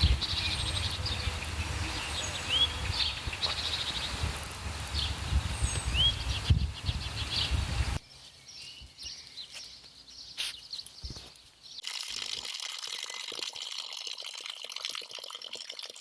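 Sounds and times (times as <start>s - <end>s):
wind rumble on microphone: 0.0s - 8.0s
small birds chirping: 0.0s - 11.9s.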